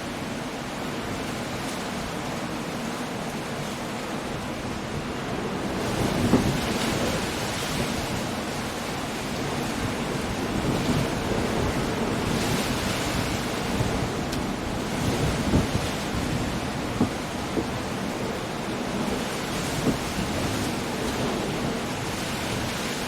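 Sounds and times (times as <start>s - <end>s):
steady rain: 0.0s - 23.0s
surf: 0.0s - 23.0s
wind: 0.0s - 23.0s
thunder rumble: 5.3s - 23.0s.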